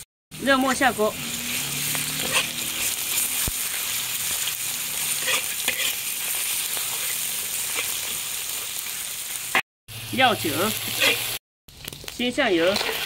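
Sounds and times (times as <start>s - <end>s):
meat sizzling in hot oil: 0.0s - 13.0s
metal spatula scraping wok: 0.6s - 8.2s, 10.6s - 11.4s, 12.5s - 13.0s.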